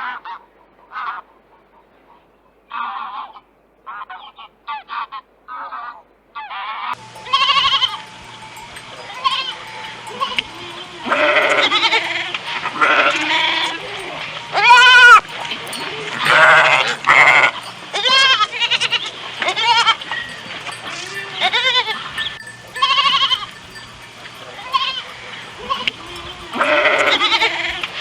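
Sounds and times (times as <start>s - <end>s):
goats bleating: 6.9s - 28.0s.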